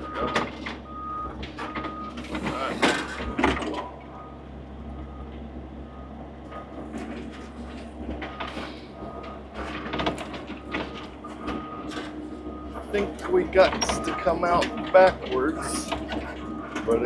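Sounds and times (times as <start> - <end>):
diesel digger engine running: 0.0 - 17.0
hydraulics working: 0.0 - 17.0.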